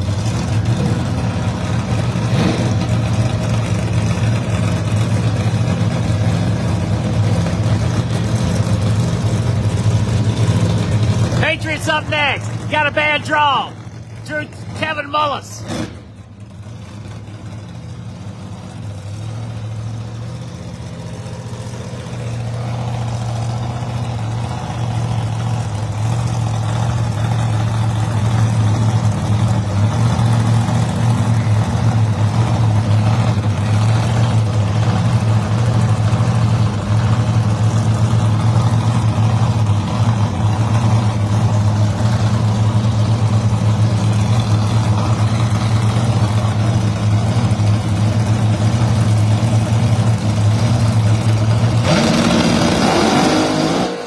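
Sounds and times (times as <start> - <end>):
drag racing car engines idling: 0.0 - 54.0.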